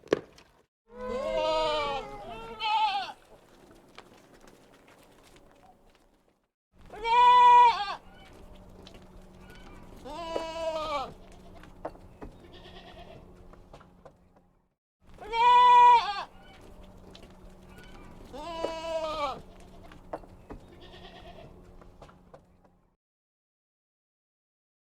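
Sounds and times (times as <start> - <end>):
goats bleating: 0.9 - 3.5, 6.8 - 8.6, 9.3 - 11.8, 12.4 - 13.4, 15.2 - 17.0, 17.6 - 21.6.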